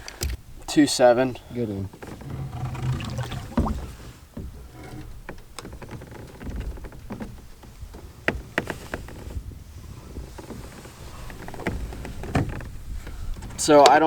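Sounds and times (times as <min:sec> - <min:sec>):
heavy thump: 0:02.1 - 0:04.6
water splashing and dripping: 0:02.3 - 0:04.1.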